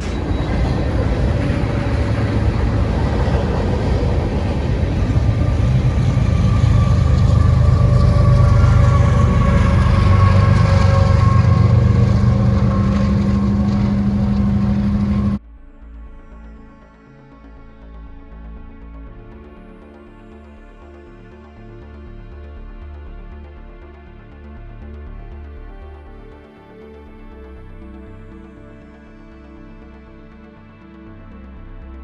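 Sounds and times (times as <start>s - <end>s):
large engine rumbling: 0.0s - 15.4s.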